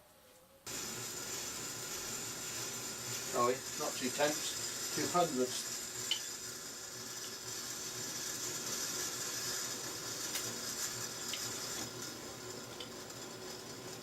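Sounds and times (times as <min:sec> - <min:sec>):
metal lathe cutting hiss: 0:00.7 - 0:14.0.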